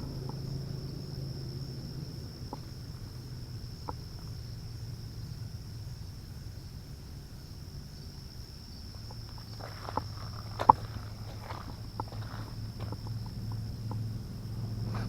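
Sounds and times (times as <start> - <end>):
low hum: 0.0 - 7.4
insects chirring: 0.0 - 15.0.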